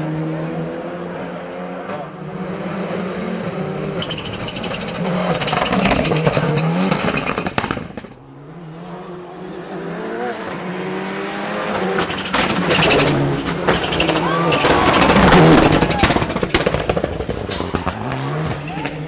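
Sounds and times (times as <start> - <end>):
race car engine revving: 0.1 - 19.0
engine crackle: 2.9 - 8.2, 10.5 - 19.0.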